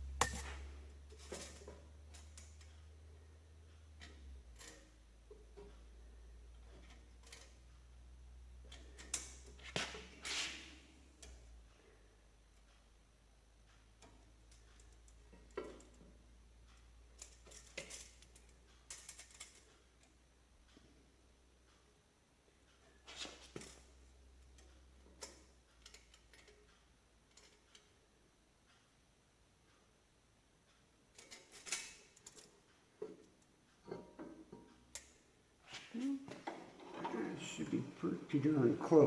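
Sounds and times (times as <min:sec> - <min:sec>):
clicks and scrapes of metal tools: 0:04.0 - 0:05.8, 0:17.1 - 0:20.2, 0:31.1 - 0:37.2.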